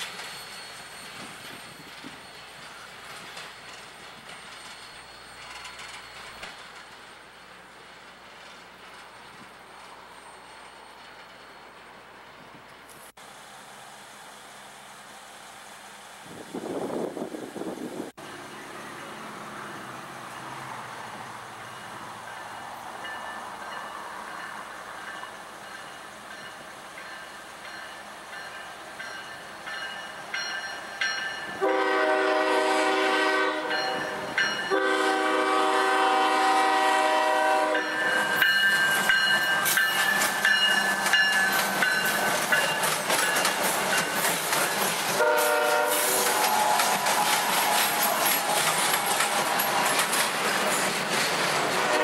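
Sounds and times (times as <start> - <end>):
train rumble: 0.0 - 52.0
train air horn blasts: 31.6 - 38.4, 45.1 - 48.3, 51.8 - 52.0
wheels clattering over rail joints: 37.7 - 52.0.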